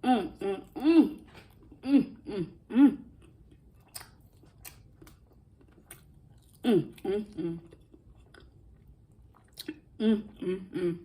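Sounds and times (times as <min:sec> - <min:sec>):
wet chewing clicks: 0:03.5 - 0:06.6.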